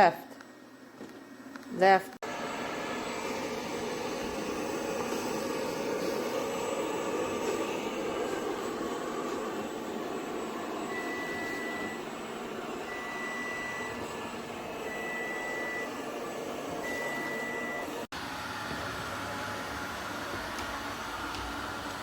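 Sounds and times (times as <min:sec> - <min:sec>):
robot vacuum whirring hum: 0:02.2 - 0:22.0
long high beeps: 0:10.9 - 0:12.1, 0:12.8 - 0:14.1, 0:14.8 - 0:16.0.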